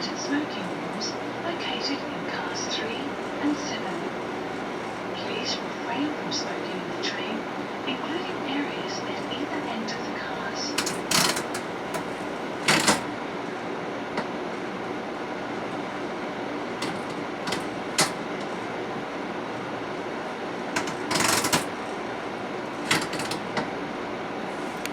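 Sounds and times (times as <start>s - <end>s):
train interior running noise: 0.0s - 24.9s
sharp clicks and knocks: 10.8s - 13.1s, 16.8s - 18.6s, 20.8s - 21.8s, 22.7s - 23.7s.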